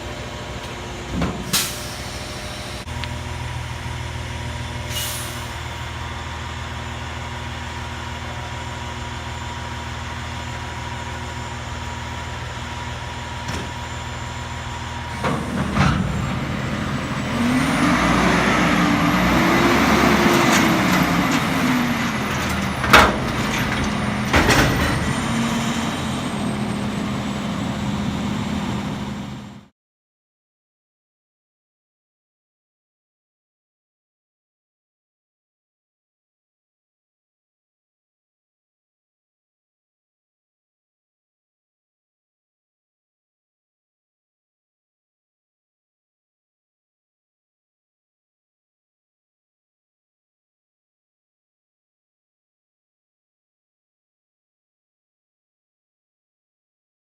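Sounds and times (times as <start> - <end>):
diesel engine idling: 0.0 - 24.3, 24.9 - 29.7
hydraulic whine: 0.0 - 29.6
air hiss: 1.5 - 2.9.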